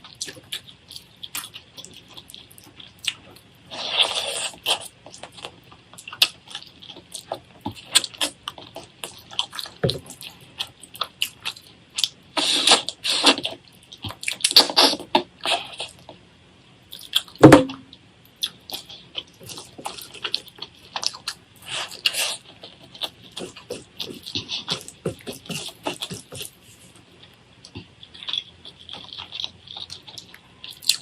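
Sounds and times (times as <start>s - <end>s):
wet chewing and slurping: 0.0s - 16.1s, 18.4s - 27.0s
sharp knock: 17.4s - 17.8s.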